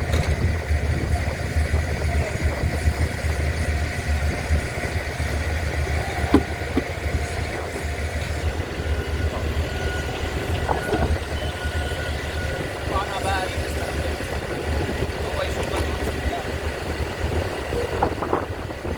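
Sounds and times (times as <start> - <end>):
engine rumbling: 0.0 - 18.9.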